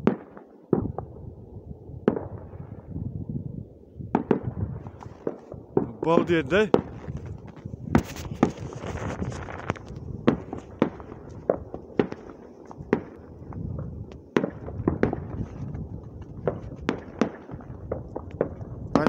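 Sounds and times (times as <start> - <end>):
fireworks bangs and pops: 4.1 - 19.0.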